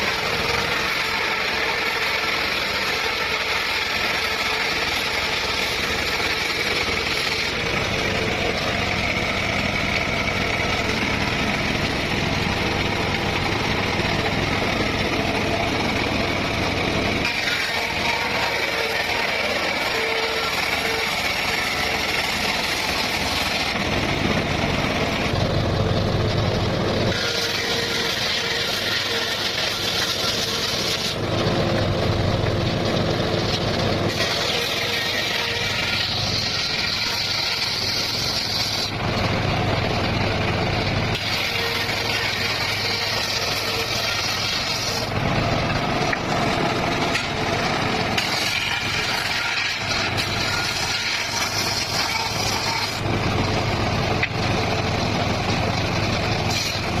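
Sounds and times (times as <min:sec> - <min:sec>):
circular saw cutting bamboo: 0:00.0 - 0:57.0.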